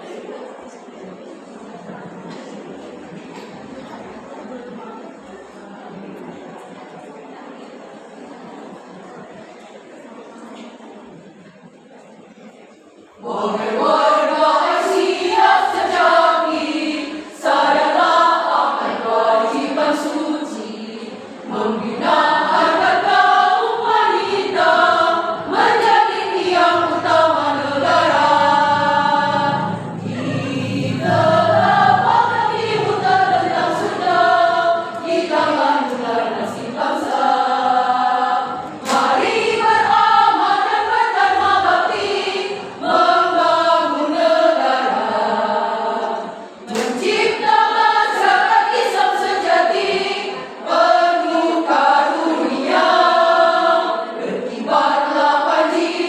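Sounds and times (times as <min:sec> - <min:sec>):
women's choir singing: 0:13.1 - 0:56.0.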